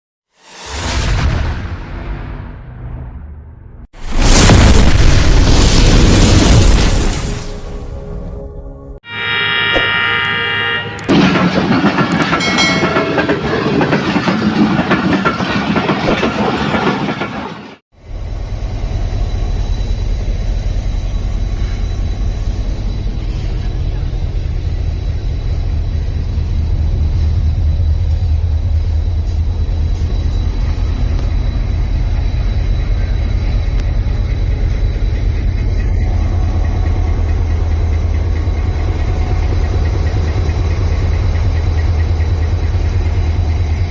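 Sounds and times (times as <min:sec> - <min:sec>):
train rumbling on rails: 0:09.9 - 0:43.9.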